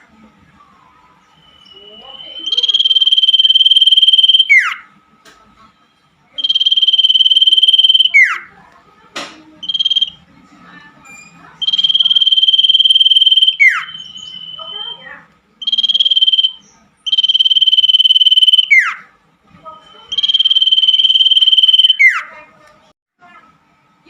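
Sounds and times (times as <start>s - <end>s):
bird whistling song: 0.8s - 4.8s, 6.4s - 8.5s, 9.6s - 10.2s, 11.6s - 19.1s, 19.9s - 22.4s.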